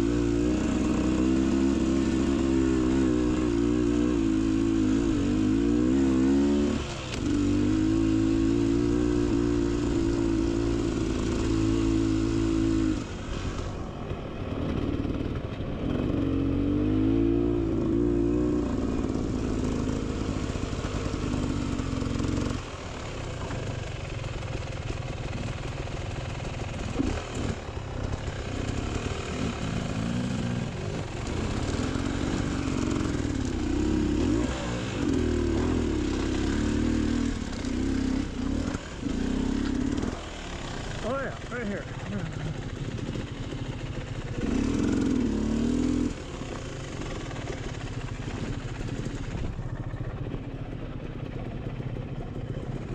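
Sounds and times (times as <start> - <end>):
dirt bike engine revving: 0.0 - 13.8, 14.5 - 24.2, 26.7 - 49.6.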